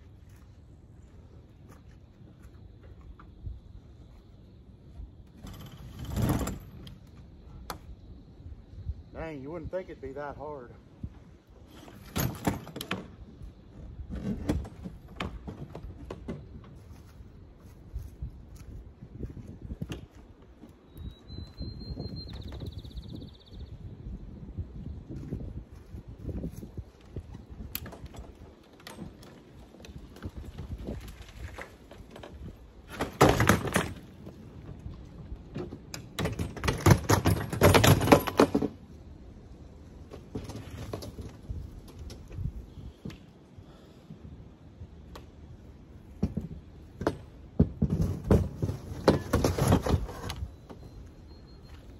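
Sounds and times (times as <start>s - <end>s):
demolition knocks and clatter: 30.2s - 38.8s, 46.2s - 50.2s
banging knocking and clattering: 35.5s - 38.8s.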